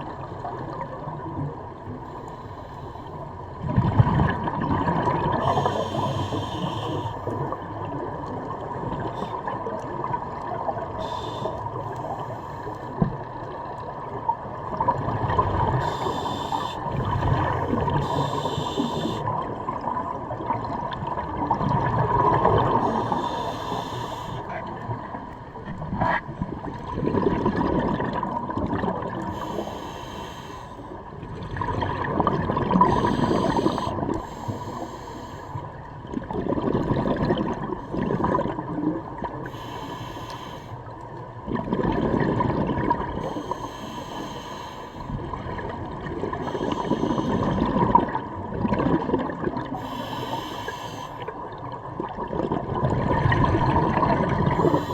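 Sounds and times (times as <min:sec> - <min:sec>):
regulator hiss on inhale: 0:02.0 - 0:03.2, 0:05.4 - 0:07.6, 0:11.0 - 0:13.0, 0:15.8 - 0:19.4, 0:22.8 - 0:24.5, 0:29.3 - 0:31.0, 0:32.9 - 0:35.8, 0:39.4 - 0:41.0, 0:43.2 - 0:45.2, 0:46.4 - 0:47.7, 0:49.7 - 0:51.4, 0:54.5 - 0:54.9
gurgling exhaled bubbles: 0:03.5 - 0:06.4, 0:12.9 - 0:29.7, 0:31.2 - 0:34.9, 0:35.8 - 0:39.6, 0:41.3 - 0:43.6, 0:45.0 - 0:50.6, 0:51.2 - 0:54.9.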